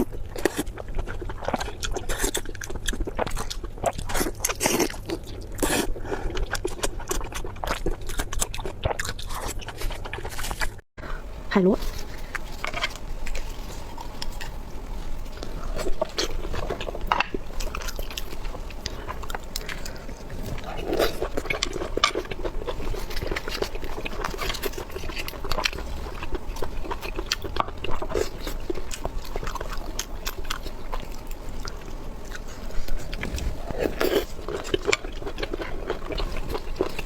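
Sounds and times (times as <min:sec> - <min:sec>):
chewing sea snails: 0:00.0 - 0:37.0
small wet clicks and crackles: 0:00.0 - 0:37.0
pitched slurping: 0:11.0 - 0:37.0.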